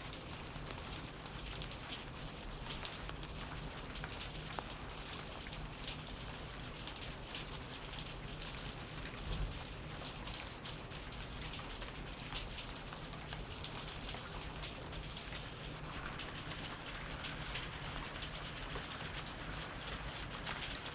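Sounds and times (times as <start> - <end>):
steady rainfall: 0.0 - 20.9.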